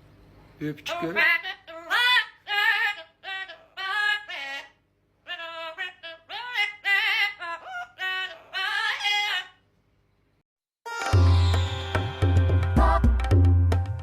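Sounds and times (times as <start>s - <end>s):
parrot warbling: 0.8s - 9.6s.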